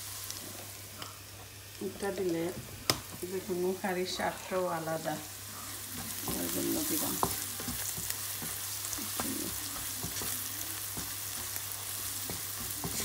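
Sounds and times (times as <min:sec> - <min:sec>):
onions sizzling in oil: 0:00.0 - 0:13.0
spatula scraping and knocking pan: 0:05.9 - 0:13.0.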